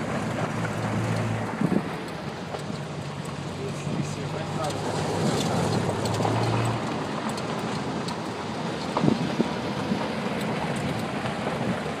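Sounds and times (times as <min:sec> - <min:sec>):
tyres over rough ground: 0:00.0 - 0:12.0
vehicle engine rumble: 0:00.0 - 0:12.0.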